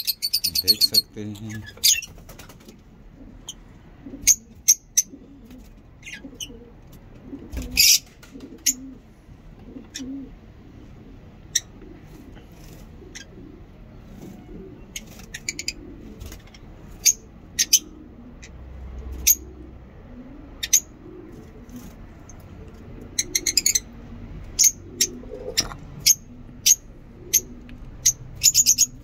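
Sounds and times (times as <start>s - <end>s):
lovebirds chirping: 0.0s - 2.2s, 23.0s - 29.0s.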